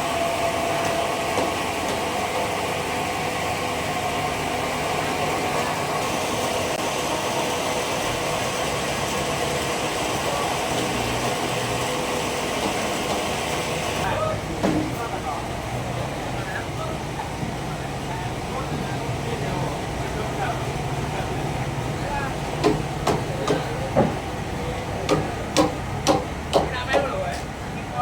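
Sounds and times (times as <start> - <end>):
band saw running: 0.0 - 16.3.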